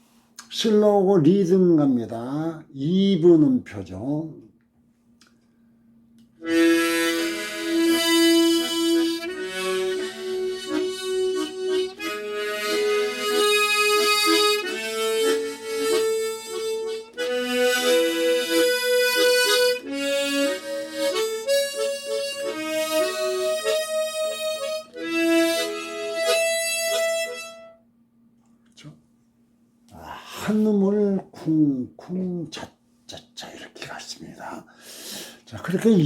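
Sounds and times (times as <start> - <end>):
harmonica playing: 6.4 - 27.9.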